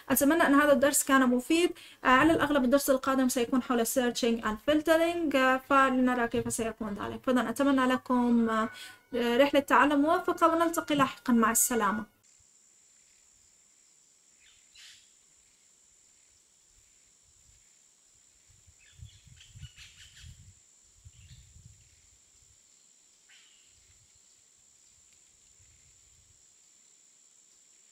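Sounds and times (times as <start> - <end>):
bird chirps: 14.4 - 15.1.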